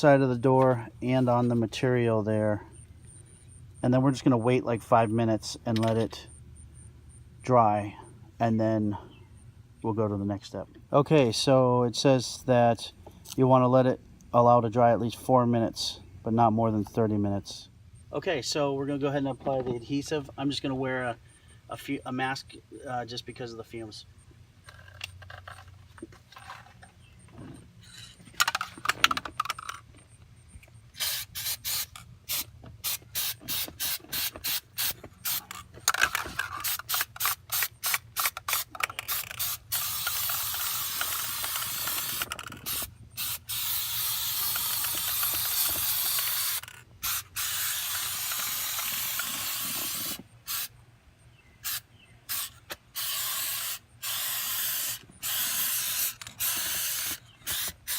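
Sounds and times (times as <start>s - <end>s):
aerosol can spraying: 31.0s - 35.5s, 36.6s - 50.7s, 51.6s - 57.9s.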